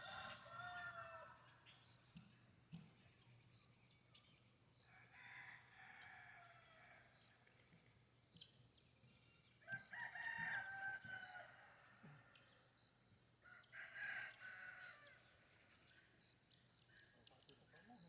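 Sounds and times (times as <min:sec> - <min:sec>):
faint rooster crowing: 0:00.0 - 0:01.8, 0:04.8 - 0:07.4, 0:09.6 - 0:12.8, 0:13.4 - 0:16.0.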